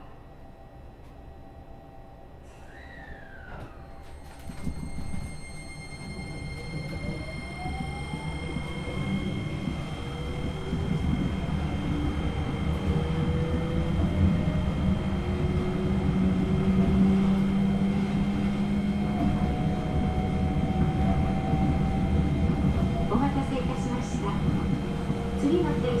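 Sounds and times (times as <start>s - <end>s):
steady high whistles: 2.6s - 12.7s
train motors whining: 2.6s - 26.0s.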